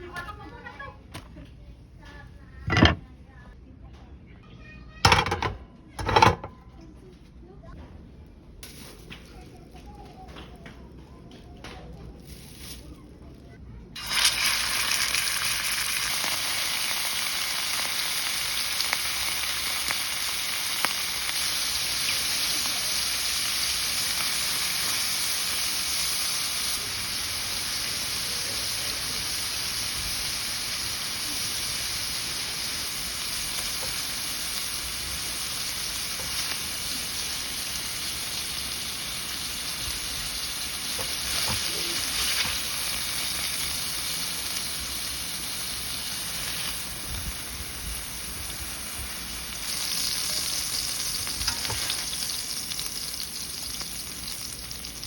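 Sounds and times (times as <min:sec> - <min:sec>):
food sizzling in hot oil: 0:14.0 - 0:55.0.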